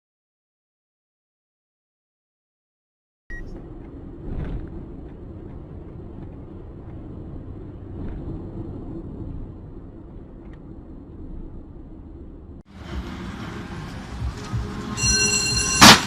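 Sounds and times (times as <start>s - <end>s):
car engine and road noise: 3.3s - 16.0s.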